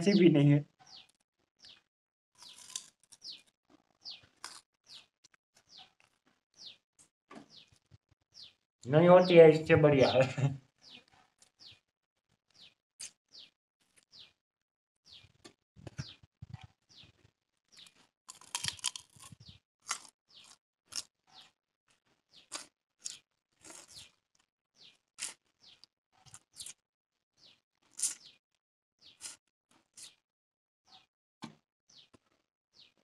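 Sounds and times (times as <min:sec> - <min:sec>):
crunching and chewing food: 0:00.8 - 0:08.6, 0:10.9 - 0:14.4, 0:15.2 - 0:26.8, 0:27.4 - 0:28.4, 0:29.0 - 0:30.2, 0:32.0 - 0:33.0.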